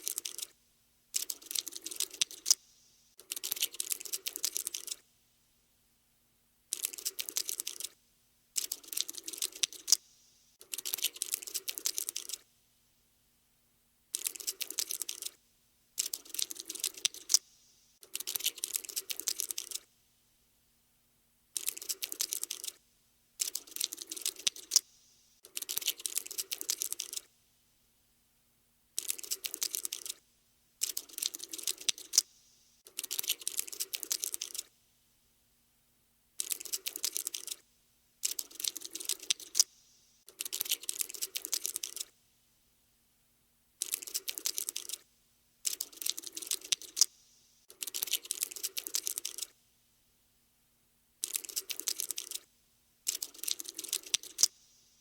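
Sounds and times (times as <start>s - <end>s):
cockroach scuttling: 0.0s - 0.5s, 1.2s - 2.6s, 6.7s - 8.0s, 8.6s - 10.0s, 10.6s - 12.4s, 14.1s - 15.4s, 16.0s - 17.4s, 18.0s - 19.8s, 21.6s - 22.8s, 23.4s - 24.8s, 25.4s - 27.3s, 29.0s - 30.2s, 30.8s - 32.3s, 32.9s - 34.7s, 36.4s - 37.6s, 38.2s - 39.7s, 40.3s - 42.1s, 43.8s - 45.0s, 45.6s - 49.5s, 51.2s - 52.4s, 53.1s - 54.6s.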